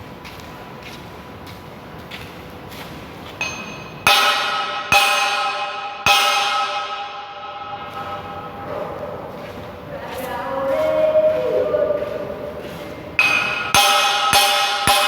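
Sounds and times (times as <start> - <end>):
metal struck ringing: 3.4 - 9.7, 13.2 - 15.0.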